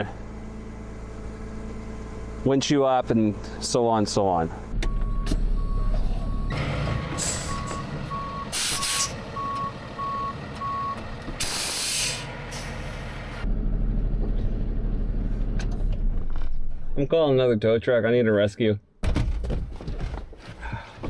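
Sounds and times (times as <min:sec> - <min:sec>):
truck engine running: 0:00.0 - 0:16.1
reverse alarm beeping: 0:04.8 - 0:06.6, 0:07.2 - 0:11.0
air brake hiss: 0:07.1 - 0:07.8, 0:08.5 - 0:09.3, 0:11.4 - 0:13.2.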